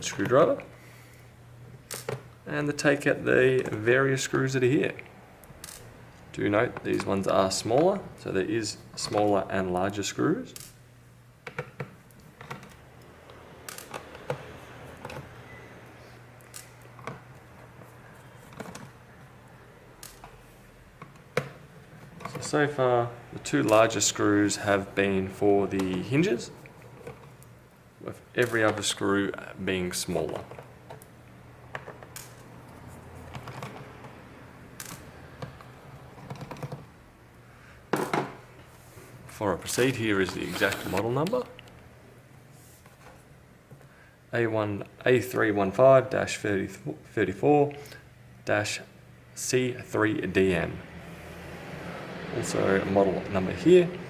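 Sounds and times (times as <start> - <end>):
screwdriver clicking on plastic: 40.3 - 41.3.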